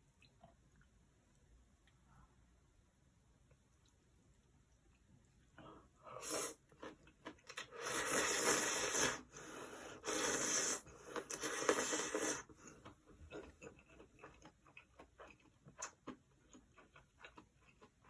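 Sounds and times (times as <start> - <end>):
noodles being slurped: 6.2 - 14.4.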